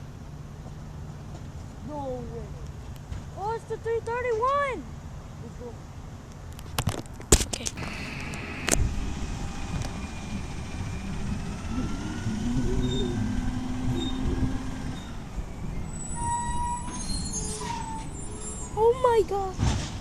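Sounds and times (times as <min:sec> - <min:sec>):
garbage truck engine rumble: 0:07.0 - 0:20.0
high steady whine: 0:07.7 - 0:17.0
mechanical whines: 0:07.8 - 0:18.8.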